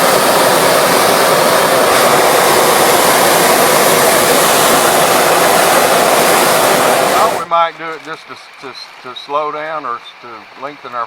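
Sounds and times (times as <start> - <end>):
propane burner roaring: 0.0 - 8.2.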